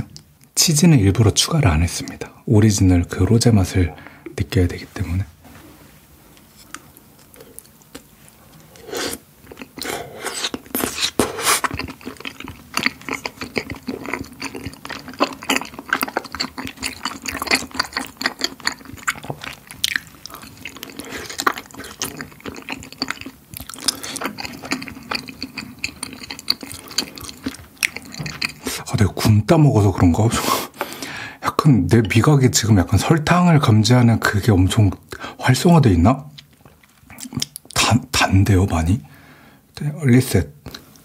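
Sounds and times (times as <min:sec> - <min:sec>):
chewing with sticky mouth clicks: 0:06.6 - 0:08.7, 0:09.4 - 0:28.8, 0:36.3 - 0:37.8.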